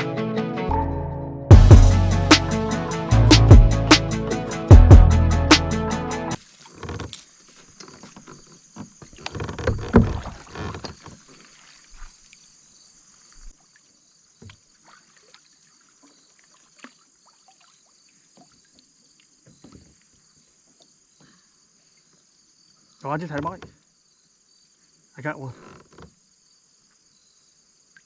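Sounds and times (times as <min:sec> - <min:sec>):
paddle knocks and splashes: 0:07.9 - 0:11.8.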